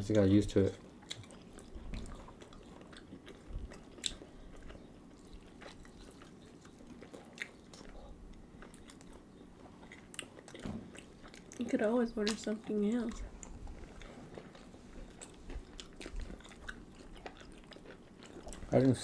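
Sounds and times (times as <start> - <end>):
wet chewing: 0.8 - 19.0
mouth clicks and smacks: 1.0 - 8.1.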